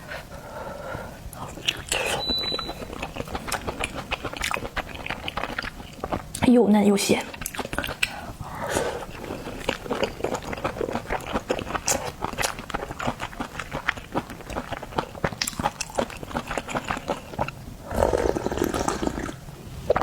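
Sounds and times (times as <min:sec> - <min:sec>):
wet chewing and lip-smacking: 0:01.3 - 0:06.5, 0:07.2 - 0:20.0
loud slurp: 0:17.8 - 0:20.0.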